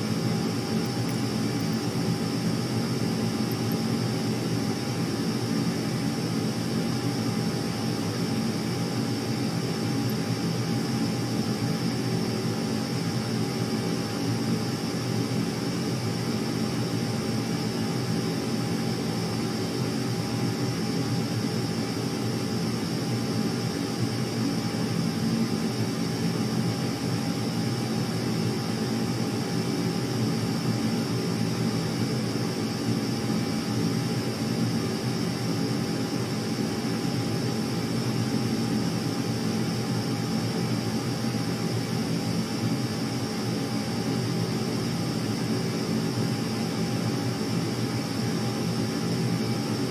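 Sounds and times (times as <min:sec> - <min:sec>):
faint high whine: 0:00.0 - 0:06.4
jet aircraft engine noise: 0:00.0 - 0:49.9.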